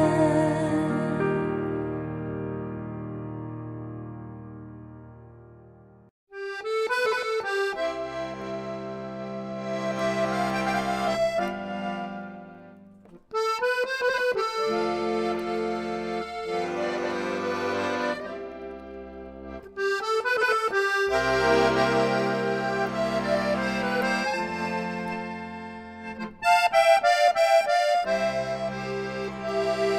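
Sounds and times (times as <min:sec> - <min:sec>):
instrumental music with sustained chords: 0:00.0 - 0:29.9.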